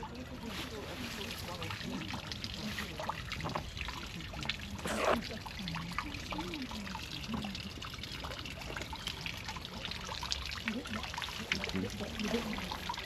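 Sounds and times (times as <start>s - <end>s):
water trickling and dripping: 0.0s - 13.0s.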